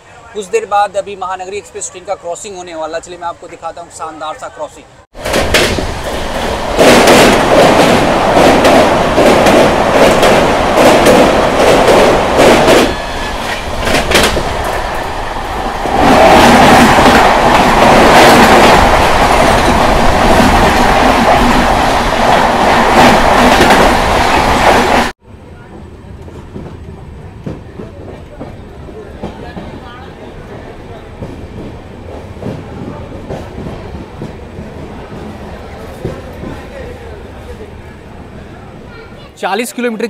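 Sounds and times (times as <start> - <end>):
passing train coaches rushing: 0.0 - 40.0
train wheels clattering: 5.2 - 25.1
wind rushing: 5.2 - 25.1.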